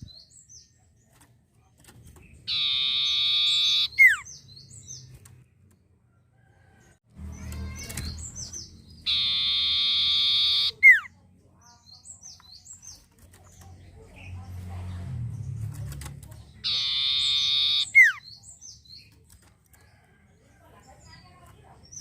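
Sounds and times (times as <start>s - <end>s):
bird whistling: 2.5s - 4.3s, 9.0s - 11.1s, 16.6s - 18.4s
short high bird chirps: 7.4s - 11.1s.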